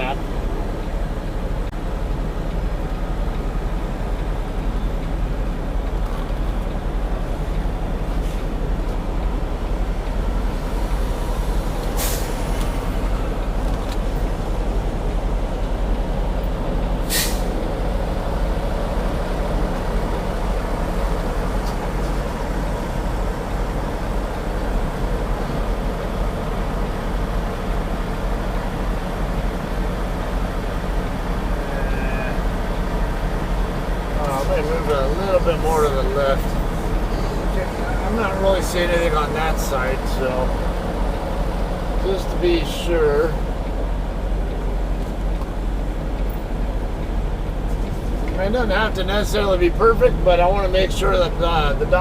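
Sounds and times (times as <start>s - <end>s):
diesel truck engine running: 0.0s - 52.0s
air brake hisses: 11.9s - 12.7s, 17.0s - 17.6s.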